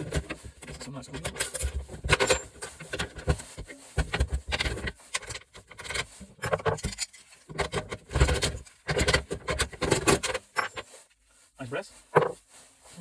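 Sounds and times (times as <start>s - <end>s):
metal stove parts clinking: 0.0s - 3.3s, 4.5s - 10.8s.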